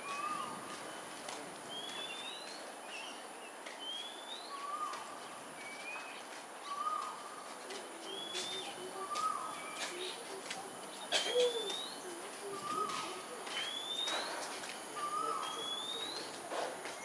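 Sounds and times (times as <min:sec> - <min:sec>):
low bird coos: 0:11.0 - 0:13.4.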